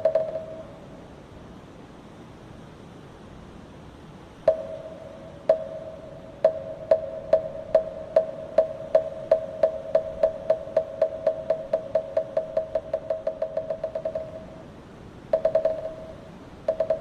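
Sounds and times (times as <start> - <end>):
faint steady hiss: 0.0 - 17.0
wooden temple block strikes: 5.5 - 14.6, 15.4 - 17.0.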